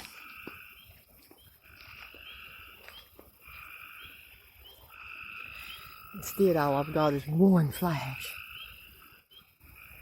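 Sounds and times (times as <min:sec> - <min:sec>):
frogs trilling: 0:00.0 - 0:10.0.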